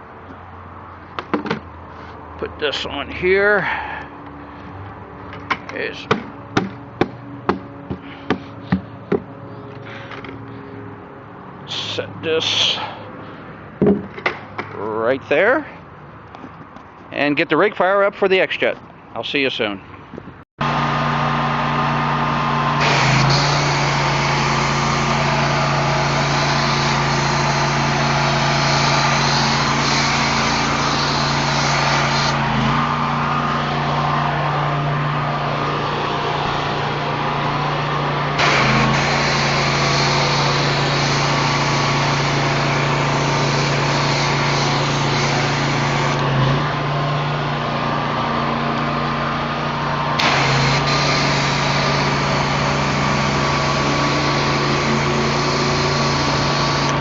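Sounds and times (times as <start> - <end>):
pressure washer engine running: 20.6 - 57.0
loud hiss: 22.8 - 32.4, 38.4 - 46.2, 50.2 - 57.0.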